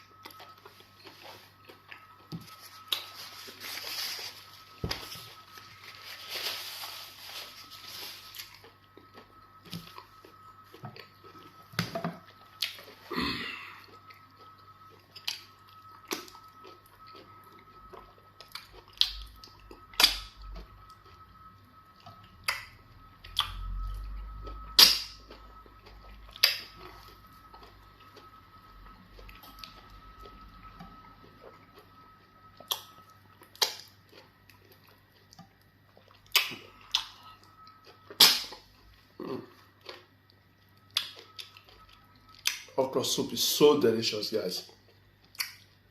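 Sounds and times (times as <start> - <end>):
faint high hum: 0.0 - 45.9
wet mouth smacks while eating: 45.3 - 45.7.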